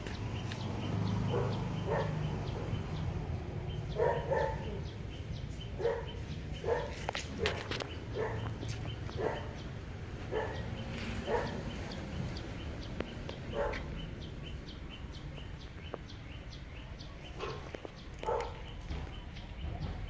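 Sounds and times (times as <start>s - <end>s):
dog barking: 1.2s - 3.0s, 3.9s - 5.0s, 5.8s - 11.9s, 13.5s - 14.1s, 17.4s - 18.8s.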